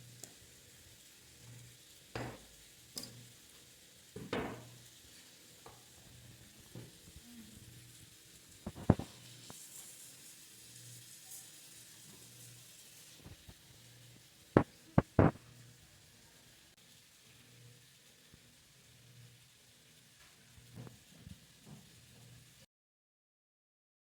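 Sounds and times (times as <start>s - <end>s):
steak sizzling in a frying pan: 0.0s - 22.6s
sharp clicks and knocks: 15.0s - 15.4s.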